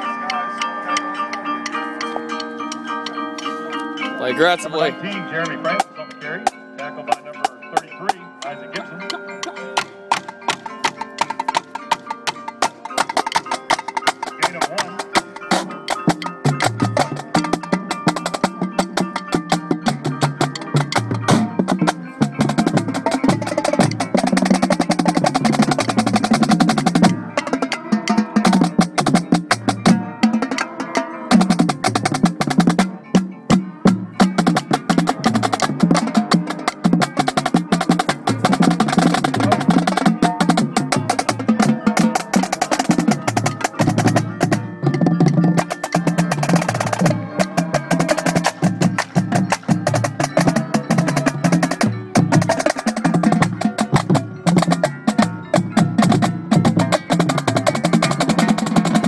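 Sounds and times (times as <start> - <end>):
tenor and bass drums: 9.8 - 30.7, 31.3 - 59.0
snare drum strokes and rolls: 45.2 - 59.0.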